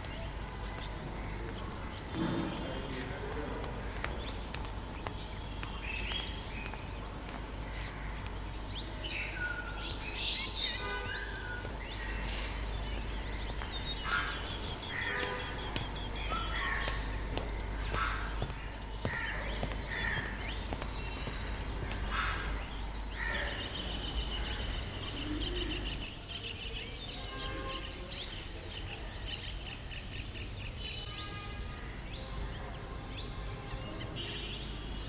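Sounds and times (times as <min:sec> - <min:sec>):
city background hum: 0:00.0 - 0:35.0
small birds chirping: 0:00.0 - 0:35.0
crows cawing: 0:07.6 - 0:08.5, 0:12.0 - 0:24.8.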